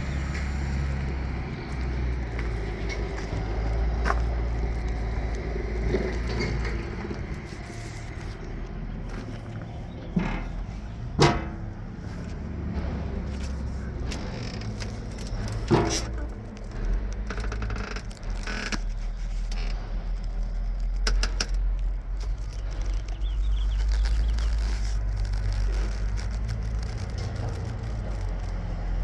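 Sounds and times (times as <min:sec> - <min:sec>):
diesel engine idling: 0:00.0 - 0:29.0
metal clicks and rattles: 0:02.4 - 0:29.0.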